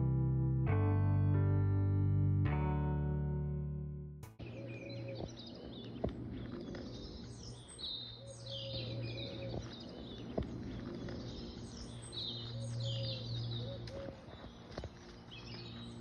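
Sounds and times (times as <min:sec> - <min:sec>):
songbirds chirping: 0:04.3 - 0:16.0.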